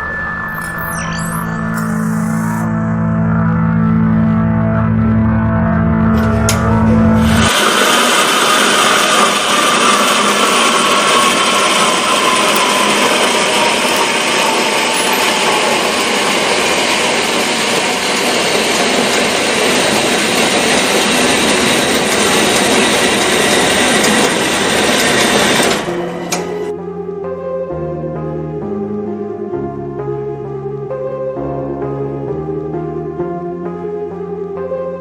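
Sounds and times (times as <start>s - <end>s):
power tool whining under load: 6.2s - 26.7s.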